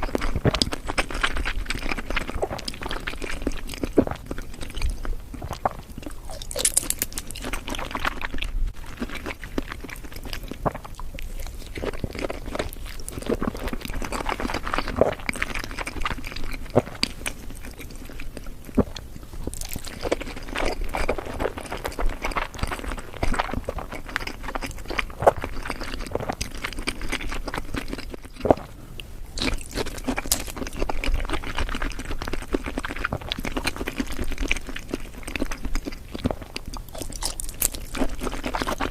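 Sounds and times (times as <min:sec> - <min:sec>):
wet chewing and mouth clicks: 0:00.0 - 0:38.9.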